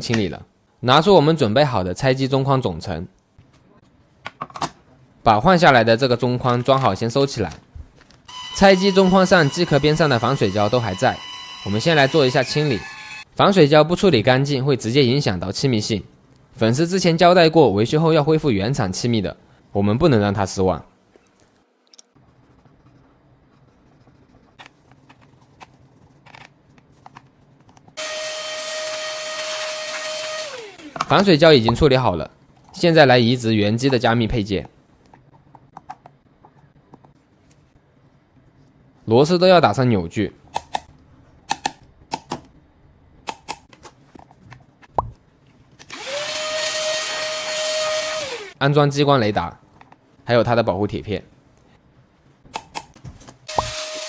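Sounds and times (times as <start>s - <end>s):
handheld power tool whining: 8.3s - 13.2s, 28.0s - 31.1s, 45.9s - 48.6s, 53.5s - 54.0s.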